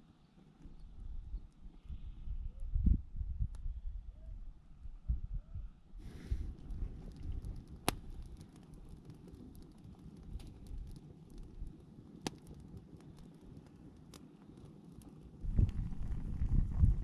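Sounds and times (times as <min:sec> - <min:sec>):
wind on microphone: 0:01.0 - 0:08.4, 0:15.4 - 0:17.0
campfire crackling: 0:06.0 - 0:17.0.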